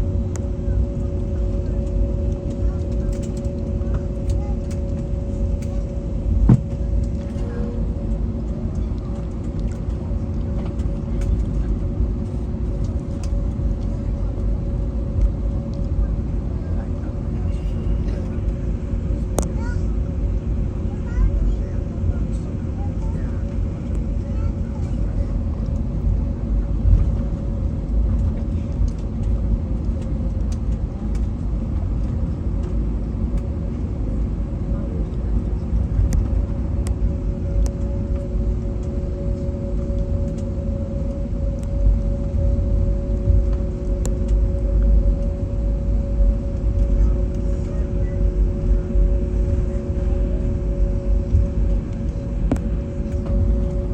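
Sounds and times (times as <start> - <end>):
aircraft cabin low rumble: 0.0 - 53.9
small rattles and clicks: 2.3 - 6.0
two-tone hum: 36.1 - 53.9.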